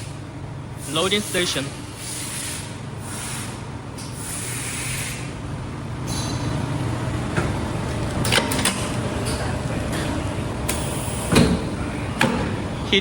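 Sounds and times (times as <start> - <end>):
steady machine hum: 0.0 - 13.0
pneumatic air hissing: 0.7 - 5.4, 10.7 - 11.6.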